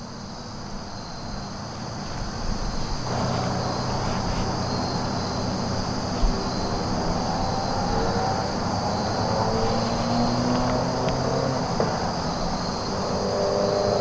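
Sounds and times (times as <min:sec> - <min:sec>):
distant low engine rumble: 0:00.0 - 0:14.0
insects chirring: 0:00.0 - 0:14.0.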